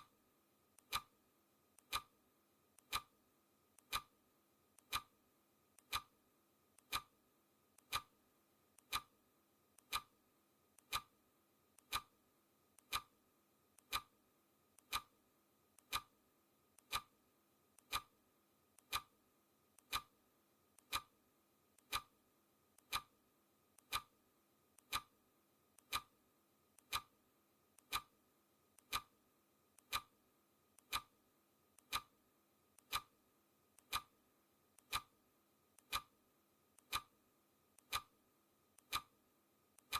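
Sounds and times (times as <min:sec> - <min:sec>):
clock ticking: 0:00.8 - 0:01.2, 0:01.8 - 0:02.2, 0:02.8 - 0:03.2, 0:03.8 - 0:04.2, 0:04.8 - 0:05.2, 0:05.8 - 0:06.2, 0:06.8 - 0:07.2, 0:07.8 - 0:08.2, 0:08.8 - 0:09.2, 0:09.8 - 0:10.2, 0:10.8 - 0:11.2, 0:11.8 - 0:12.2, 0:12.8 - 0:13.2, 0:13.8 - 0:14.2, 0:14.8 - 0:15.2, 0:15.8 - 0:16.2, 0:16.8 - 0:17.2, 0:17.8 - 0:18.2, 0:18.8 - 0:19.2, 0:19.8 - 0:20.2, 0:20.8 - 0:21.2, 0:21.8 - 0:22.2, 0:22.8 - 0:23.2, 0:23.8 - 0:24.2, 0:24.8 - 0:25.2, 0:25.8 - 0:26.2, 0:26.8 - 0:27.2, 0:27.8 - 0:28.2, 0:28.8 - 0:29.2, 0:29.8 - 0:30.2, 0:30.8 - 0:31.2, 0:31.8 - 0:32.2, 0:32.8 - 0:33.2, 0:33.8 - 0:34.2, 0:34.8 - 0:35.2, 0:35.8 - 0:36.2, 0:36.8 - 0:37.2, 0:37.8 - 0:38.2, 0:38.8 - 0:39.2.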